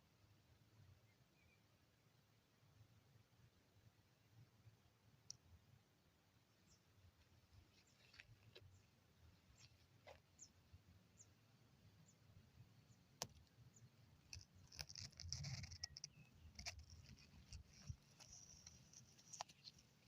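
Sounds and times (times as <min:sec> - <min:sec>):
faint outdoor ambience: 0:00.0 - 0:20.0
small clicks: 0:14.3 - 0:19.8.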